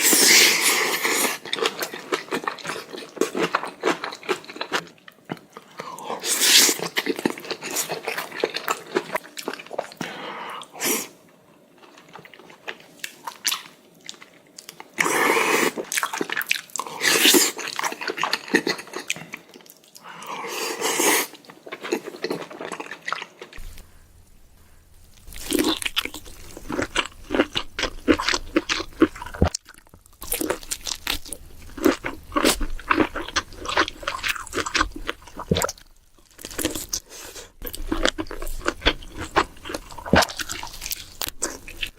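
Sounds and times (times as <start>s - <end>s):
person chewing crunchy food: 0.0s - 10.2s, 11.8s - 41.9s.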